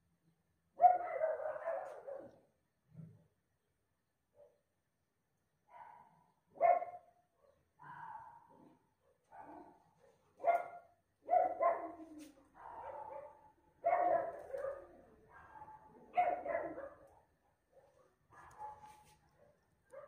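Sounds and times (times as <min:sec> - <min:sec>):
dog barking: 0:00.8 - 0:02.5, 0:05.7 - 0:20.0.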